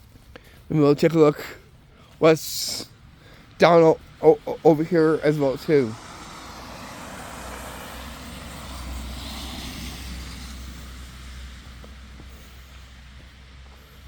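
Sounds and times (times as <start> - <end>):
vehicle passing by: 4.0 - 14.0.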